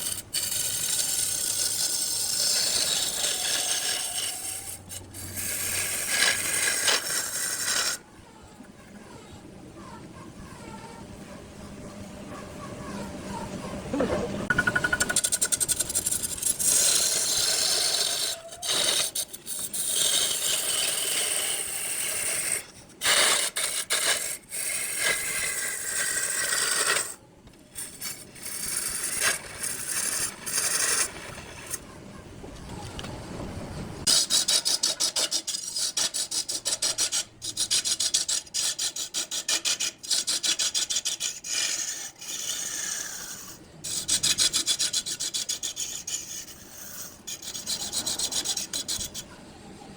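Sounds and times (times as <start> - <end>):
lathe tool scraping wood: 0.0 - 8.0, 14.5 - 22.6.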